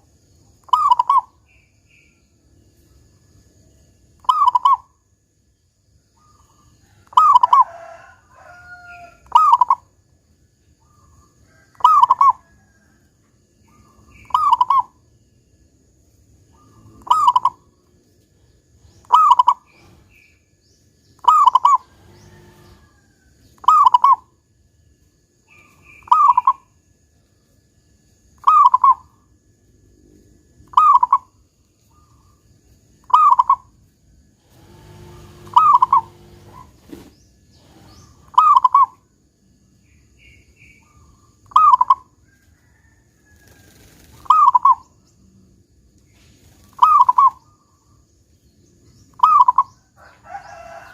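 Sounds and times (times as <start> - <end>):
small birds chirping: 0.0 - 3.2, 4.0 - 5.0, 6.1 - 7.6, 10.6 - 12.5, 13.6 - 15.5, 16.1 - 24.3, 25.0 - 26.8, 28.3 - 29.3, 30.7 - 39.1, 39.8 - 42.1, 42.7 - 50.9
dove cooing: 0.7 - 1.4, 4.3 - 4.8, 7.0 - 8.1, 8.9 - 9.9, 11.6 - 12.5, 13.7 - 15.0, 16.6 - 17.8, 19.0 - 20.2, 21.2 - 23.0, 23.6 - 24.3, 26.0 - 26.6, 33.1 - 33.7, 34.4 - 38.9, 43.7 - 44.9, 46.7 - 47.6, 49.2 - 50.9.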